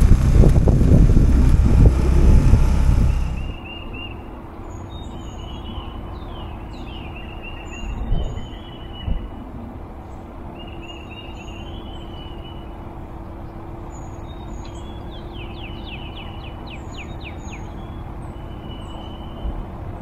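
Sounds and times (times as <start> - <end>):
steady low hum and rumble: 0.0 - 3.6.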